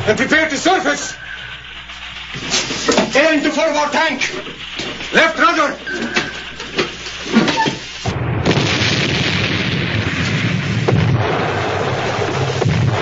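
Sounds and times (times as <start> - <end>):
high-pressure air rushing: 0.0 - 8.2.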